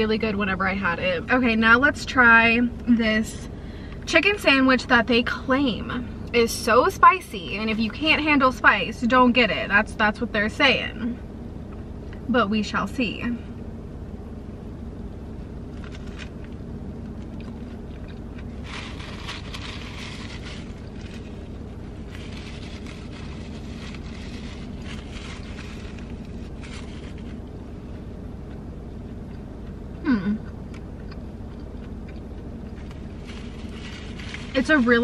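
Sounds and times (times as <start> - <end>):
car engine hum: 0.0 - 35.0
crunchy chewing: 15.7 - 34.8
person humming mm: 30.0 - 30.5.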